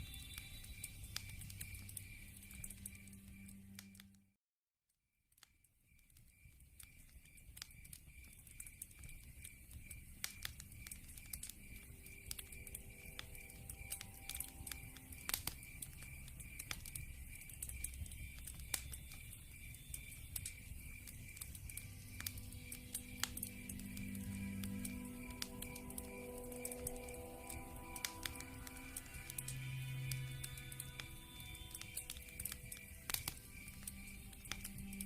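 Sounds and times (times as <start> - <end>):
cricket chirping: 0.0 - 4.0, 5.4 - 35.0
log fire crackling: 0.0 - 4.0, 5.9 - 35.0.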